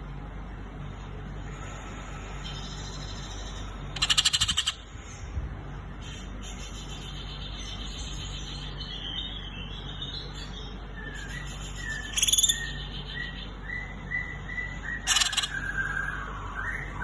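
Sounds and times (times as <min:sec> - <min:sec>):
bird whistled calls: 0:10.9 - 0:17.0.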